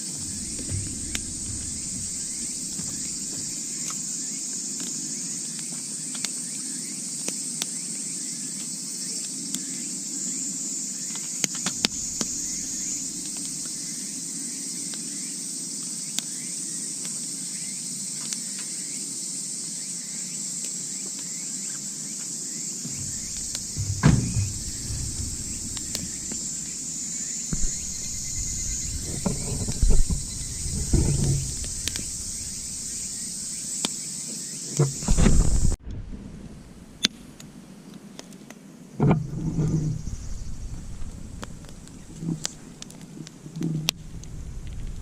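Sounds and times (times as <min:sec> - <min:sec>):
low thumps and rumbles: 0:00.0 - 0:04.0, 0:11.7 - 0:13.9, 0:22.8 - 0:33.6, 0:34.8 - 0:37.4, 0:39.0 - 0:43.0, 0:43.9 - 0:45.0
night insects trilling: 0:00.0 - 0:35.8.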